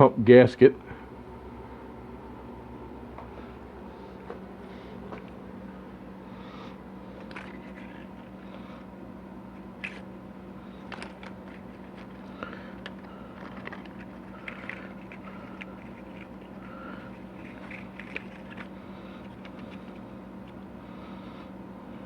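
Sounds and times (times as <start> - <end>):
steady low hum: 0.0 - 22.0
parts clicking and scraping: 7.2 - 8.7, 9.5 - 20.7.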